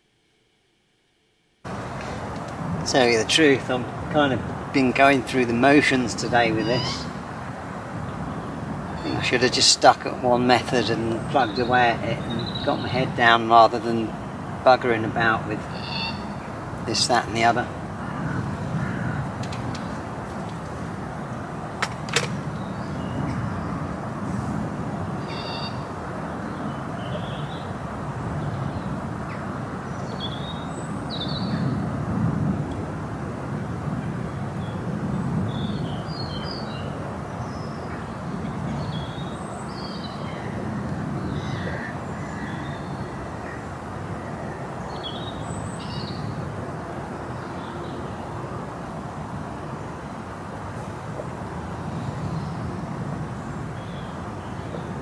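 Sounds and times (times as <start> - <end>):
small birds chirping: 5.7 - 23.9.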